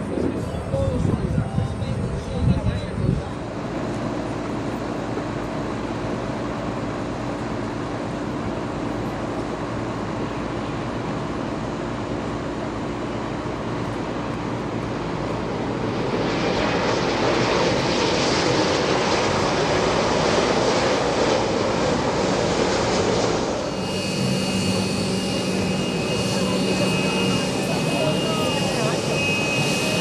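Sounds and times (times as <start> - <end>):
jet engines rumbling: 0.0 - 30.0
jet engine hiss: 15.8 - 30.0.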